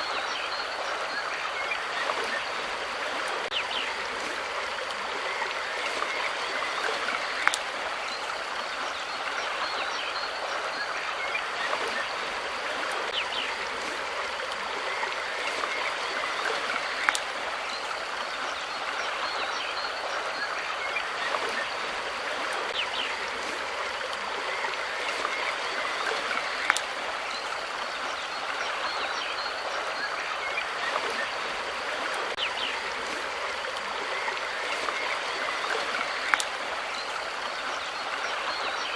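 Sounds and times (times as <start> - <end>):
flowing water: 0.0 - 38.9.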